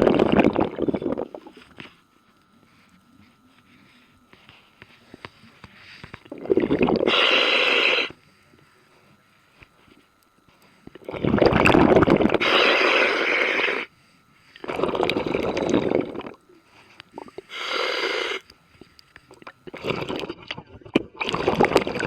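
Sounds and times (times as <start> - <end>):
diver breathing through regulator: 4.6 - 8.9, 12.3 - 19.0.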